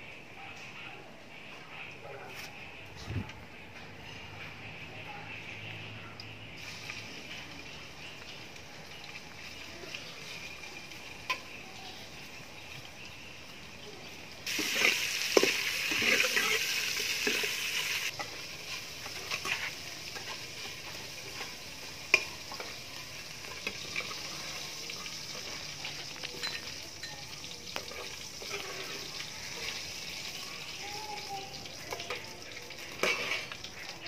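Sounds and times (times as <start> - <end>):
food sizzling in hot oil: 6.6 - 34.0
metal ladle clinking in pot: 26.3 - 27.3.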